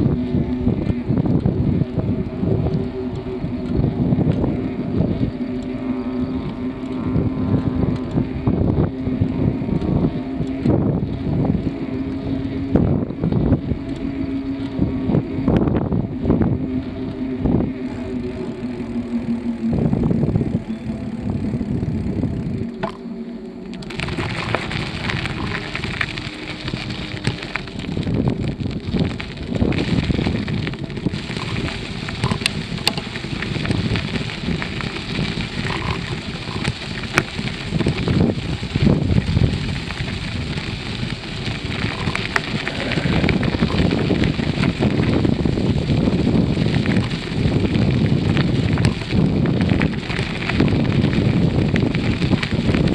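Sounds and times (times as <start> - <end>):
bicycle rattle: 0.0 - 52.9
low droning hum: 0.0 - 52.9
wind buffeting microphone: 0.0 - 52.9.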